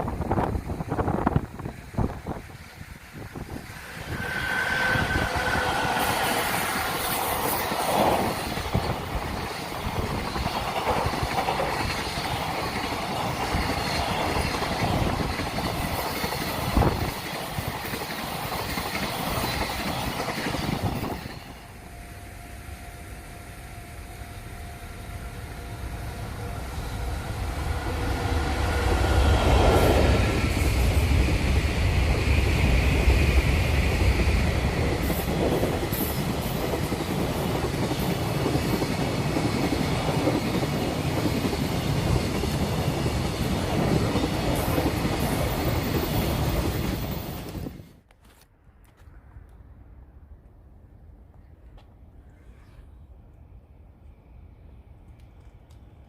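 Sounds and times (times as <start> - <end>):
freight train clattering over rails: 0.0 - 21.8, 26.2 - 47.9
approaching train rumble: 0.0 - 48.1.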